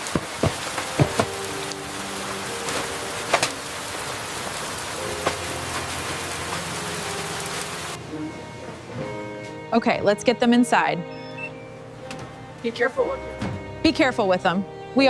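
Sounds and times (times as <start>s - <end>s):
heavy raindrop striking close: 0.0s - 8.0s
steady rain falling: 0.0s - 9.0s.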